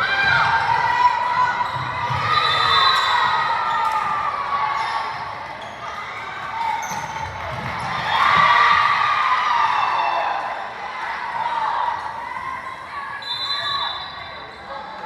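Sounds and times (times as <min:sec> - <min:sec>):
crowd chatter and calls: 0:00.0 - 0:15.0
volleyball bouncing on gym floor: 0:06.8 - 0:08.9.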